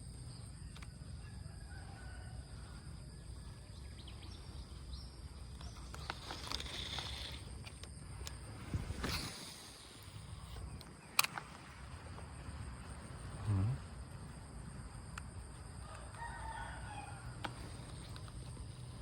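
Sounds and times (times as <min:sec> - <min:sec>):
distant rooster crowing: 0:01.0 - 0:03.4, 0:15.6 - 0:18.0
sharp click: 0:10.5 - 0:11.5.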